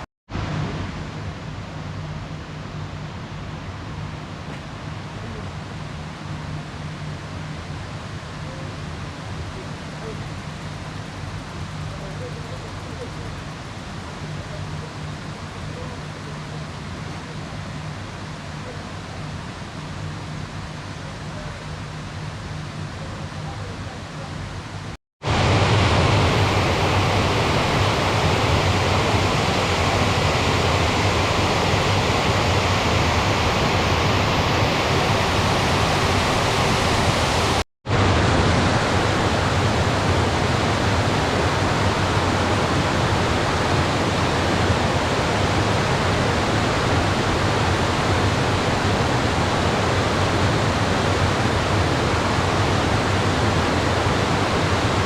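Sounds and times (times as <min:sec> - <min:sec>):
rush of running water: 0:04.2 - 0:55.0.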